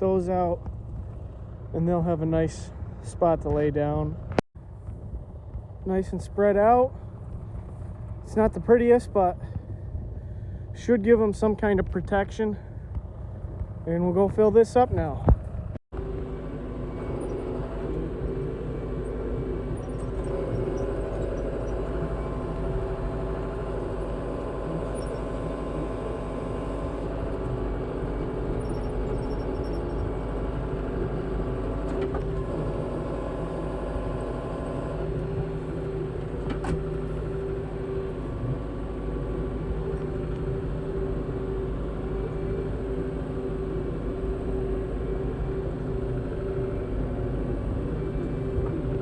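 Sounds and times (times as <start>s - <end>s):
tractor engine running: 0.0s - 49.0s.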